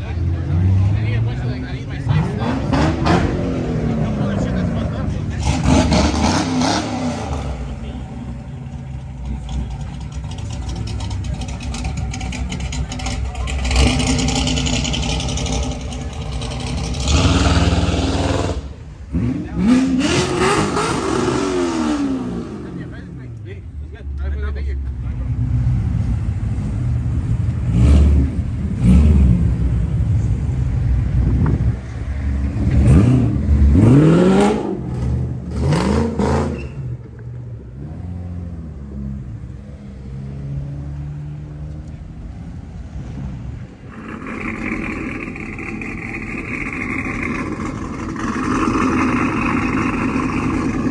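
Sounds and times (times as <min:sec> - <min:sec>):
car engine revving: 0:00.0 - 0:23.8, 0:24.4 - 0:50.9.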